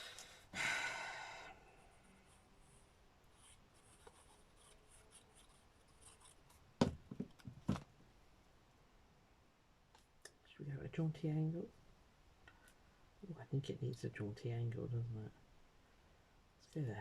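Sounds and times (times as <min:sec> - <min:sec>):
faint scratching: 0:01.8 - 0:06.7
sharp taps and knocks: 0:06.8 - 0:07.9.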